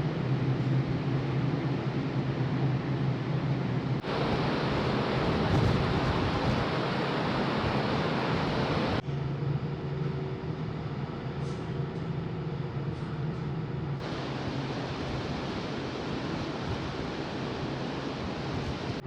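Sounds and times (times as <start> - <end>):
ferry engine drone and hum: 0.0 - 19.0
even rushing noise: 4.0 - 9.0, 14.0 - 19.0.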